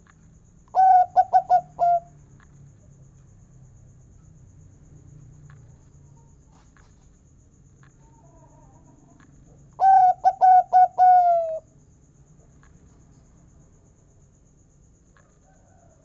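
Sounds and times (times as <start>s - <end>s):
dove cooing: 0.8s - 2.1s, 9.8s - 11.6s.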